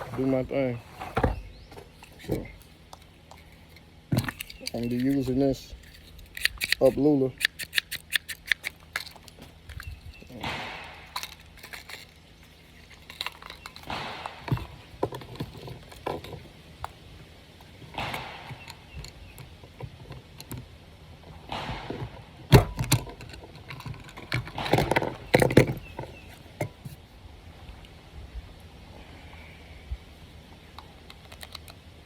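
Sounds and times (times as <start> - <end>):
metal and plastic rattles: 2.0 - 16.5, 21.3 - 26.8
cartridges clicking into magazine: 4.3 - 9.3, 10.4 - 12.2
sharp knock: 10.4 - 11.1.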